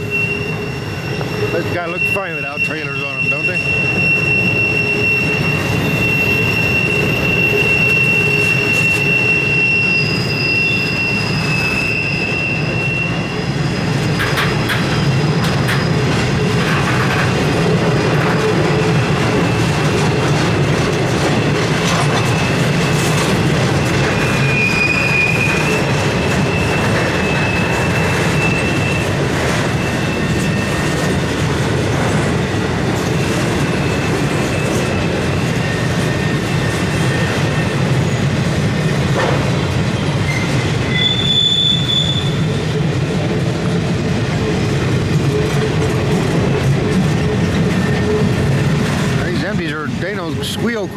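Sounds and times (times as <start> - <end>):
high-pitched wheel squeal: 0.0 - 20.0, 21.3 - 31.2, 33.1 - 43.0
train wheels rumbling on rail: 0.0 - 50.9.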